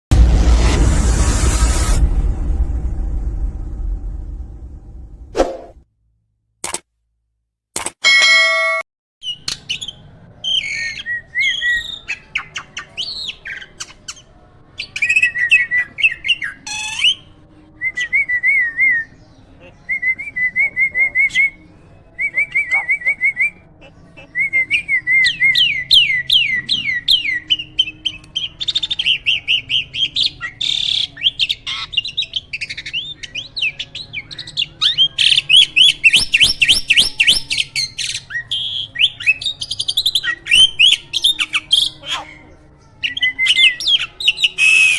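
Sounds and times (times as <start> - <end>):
starling singing: 9.2 - 17.4, 22.2 - 44.9.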